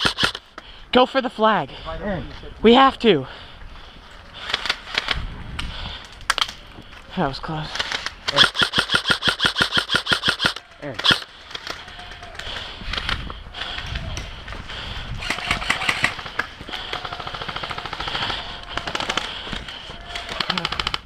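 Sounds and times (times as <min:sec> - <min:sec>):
airsoft guns firing bursts: 0:00.0 - 0:00.4, 0:08.3 - 0:11.8, 0:15.2 - 0:19.6, 0:20.2 - 0:21.0.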